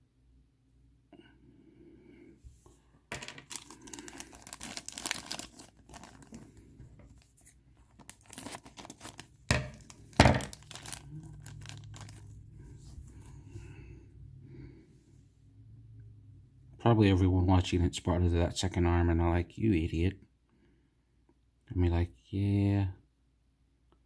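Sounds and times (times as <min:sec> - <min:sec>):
plastic bags tearing and crinkling: 0:03.2 - 0:13.4.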